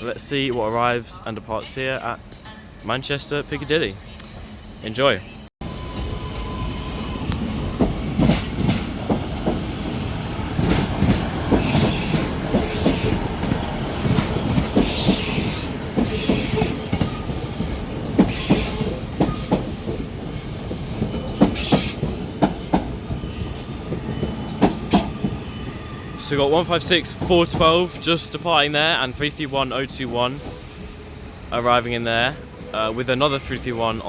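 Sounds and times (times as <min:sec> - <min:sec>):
train rumble: 0:04.0 - 0:34.0
wheel squeal: 0:05.6 - 0:26.1.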